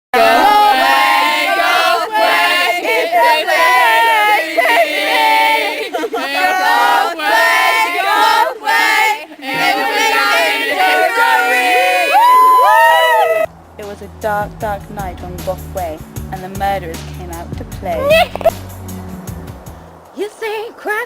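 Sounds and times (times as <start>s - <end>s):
people singing together: 0.1s - 13.0s.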